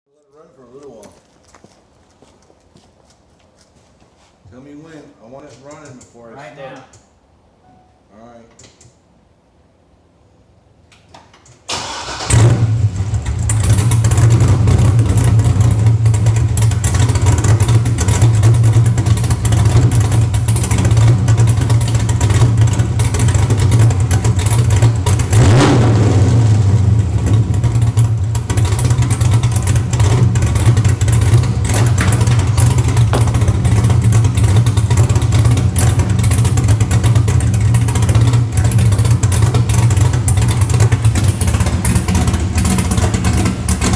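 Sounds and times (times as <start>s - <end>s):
engine cranking: 11.7s - 43.9s
loud engine idling: 12.5s - 43.9s.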